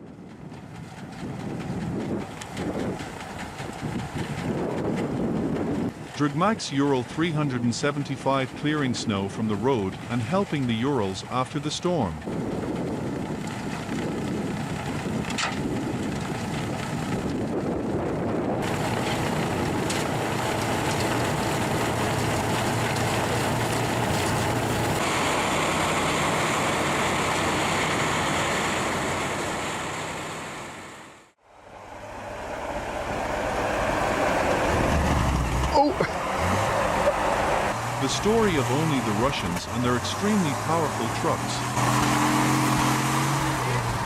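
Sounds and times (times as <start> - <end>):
wind buffeting microphone: 0.0 - 6.2, 11.9 - 25.0, 32.6 - 38.5
truck engine under load: 0.0 - 44.0.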